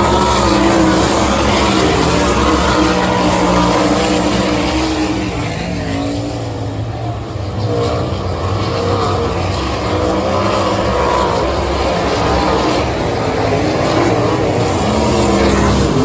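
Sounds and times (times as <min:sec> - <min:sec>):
race car engines: 0:00.0 - 0:16.0.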